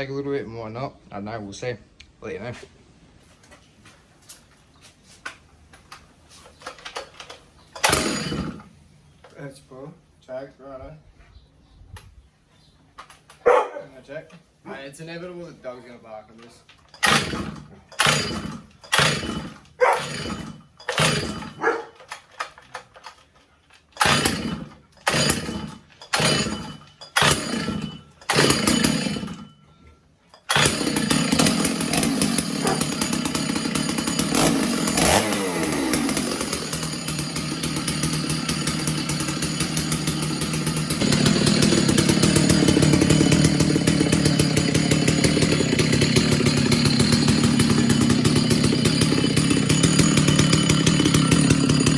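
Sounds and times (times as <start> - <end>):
recoil starter pulls: 5.9 - 9.5, 16.3 - 29.6, 30.3 - 51.9
chainsaw engine running: 7.7 - 8.7, 16.9 - 23.2, 24.0 - 29.5, 30.5 - 51.9.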